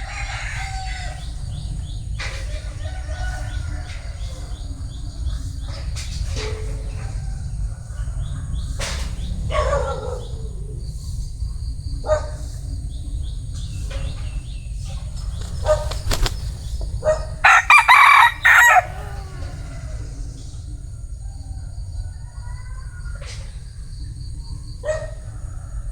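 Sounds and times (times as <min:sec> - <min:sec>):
rooster crowing: 0:00.0 - 0:01.6, 0:02.6 - 0:04.7, 0:17.4 - 0:20.2.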